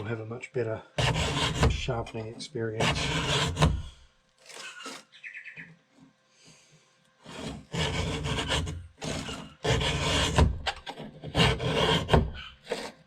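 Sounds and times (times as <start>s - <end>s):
file rasping on chain teeth: 1.0s - 3.8s, 4.4s - 5.1s, 7.2s - 13.0s.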